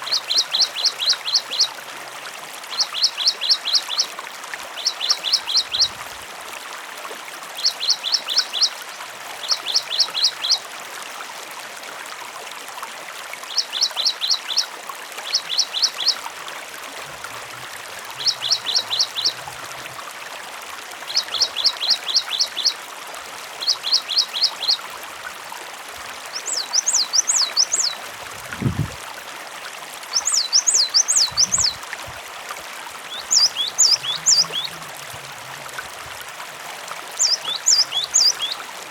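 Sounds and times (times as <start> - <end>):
trickling water: 0.0 - 38.9
bird singing short fast phrases: 37.2 - 38.6.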